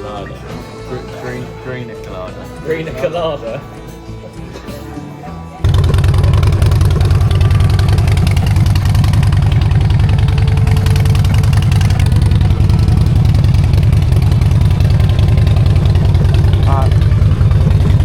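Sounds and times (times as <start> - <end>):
motorcycle engine idling: 5.6 - 18.0.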